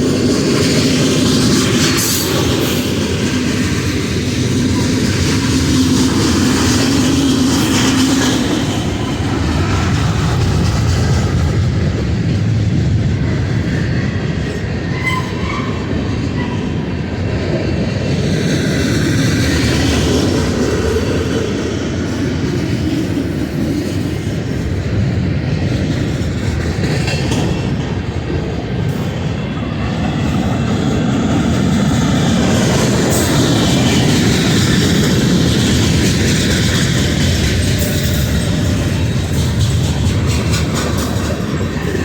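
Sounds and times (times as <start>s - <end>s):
clickety-clack over rail joints: 0.0s - 42.0s
freight train wheels rumbling: 0.0s - 42.0s.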